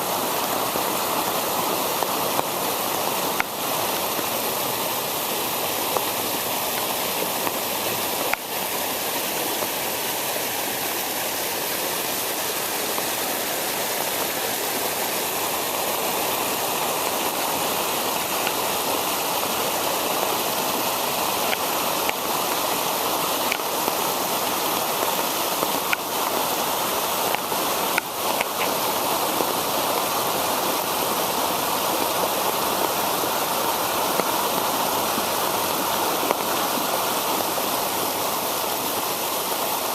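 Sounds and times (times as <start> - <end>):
storm water rushing: 0.0 - 39.9.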